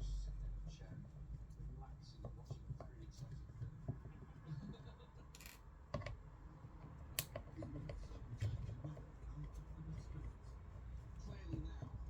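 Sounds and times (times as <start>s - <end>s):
small tools clicking and scraping: 5.4s - 5.6s.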